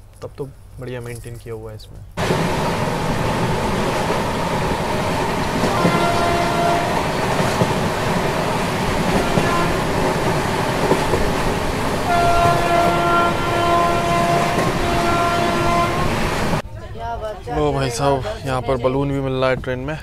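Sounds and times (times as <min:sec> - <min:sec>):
train wheels rumbling and rattling: 0:00.8 - 0:16.6.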